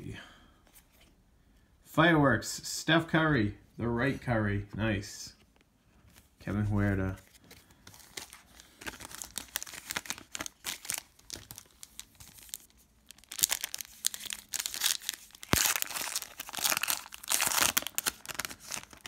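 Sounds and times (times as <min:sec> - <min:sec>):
cards being handled: 0:07.0 - 0:19.0
wrapper crinkling and tearing: 0:07.9 - 0:19.0.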